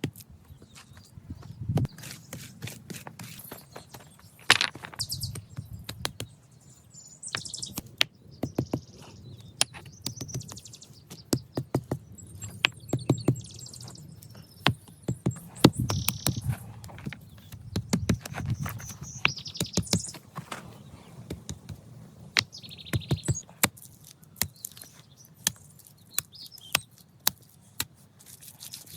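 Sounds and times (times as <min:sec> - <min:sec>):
short high bird chirps: 0:15.3 - 0:16.5, 0:18.5 - 0:20.2.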